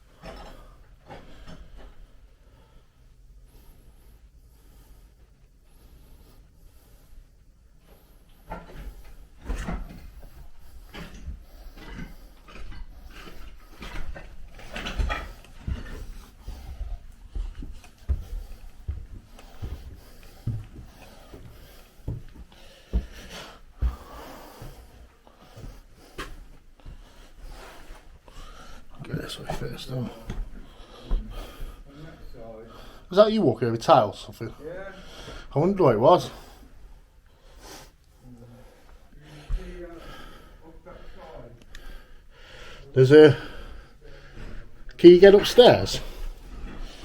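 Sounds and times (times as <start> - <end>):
footsteps and knocks: 7.9 - 31.9.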